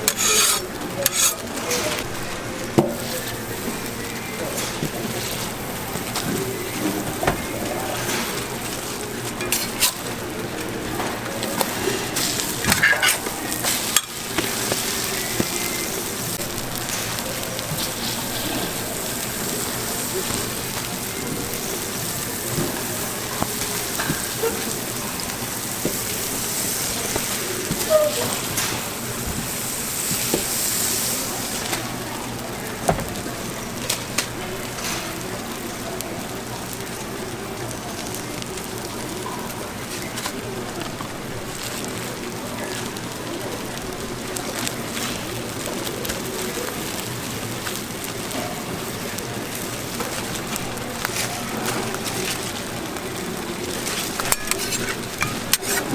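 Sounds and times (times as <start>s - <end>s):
metal utensils clicking: 0.0s - 2.1s, 11.6s - 15.9s, 53.9s - 55.9s
metal utensils clicking and scraping: 0.0s - 31.8s, 53.8s - 55.9s
food sizzling on griddle: 0.0s - 55.9s.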